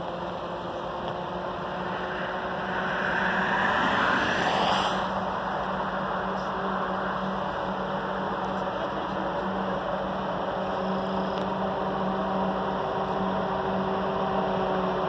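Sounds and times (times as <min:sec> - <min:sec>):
distant train rumble: 0:00.6 - 0:07.7.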